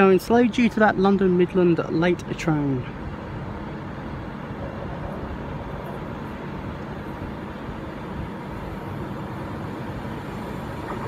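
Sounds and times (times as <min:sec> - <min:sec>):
electric train rumbling past: 0:02.7 - 0:11.0.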